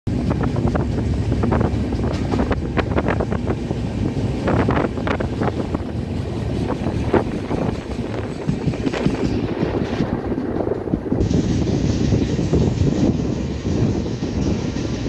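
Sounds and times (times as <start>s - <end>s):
train rumbling: 0.0s - 15.0s
wind buffeting microphone: 0.1s - 15.0s.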